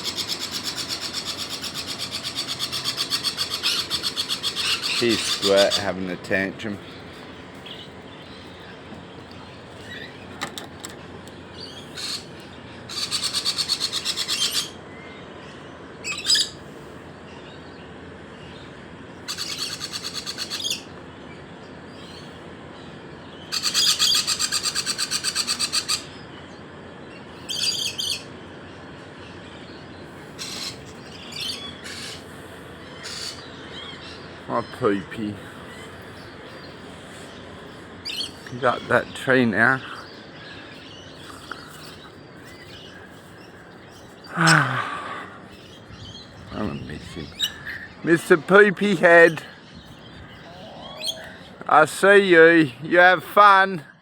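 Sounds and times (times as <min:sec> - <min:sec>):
pet bird chattering: 0:00.0 - 0:06.0, 0:11.6 - 0:14.8, 0:19.3 - 0:20.9, 0:23.4 - 0:26.2, 0:27.5 - 0:28.3, 0:30.4 - 0:32.3, 0:32.9 - 0:43.0, 0:45.6 - 0:51.5.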